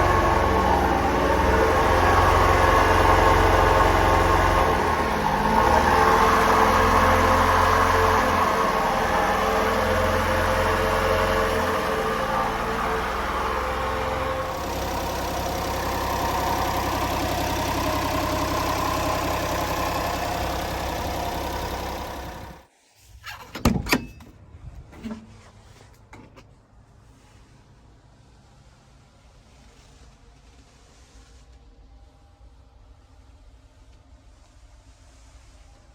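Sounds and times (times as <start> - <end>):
small engine running: 0.0 - 22.7.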